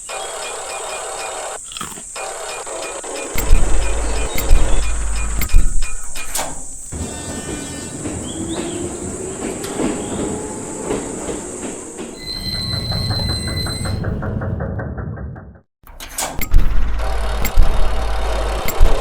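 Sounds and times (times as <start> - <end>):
high tone with rapid ticks: 2.2 - 6.4, 16.4 - 19.0
train rumble and wheel noise: 3.2 - 15.5
sharp knocks: 3.4 - 6.8.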